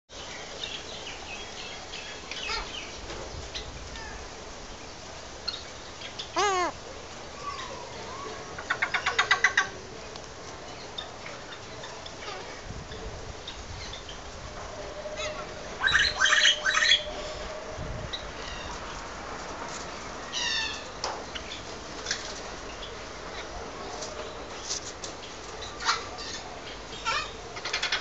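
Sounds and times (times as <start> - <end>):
parrot calling: 6.4 - 6.8.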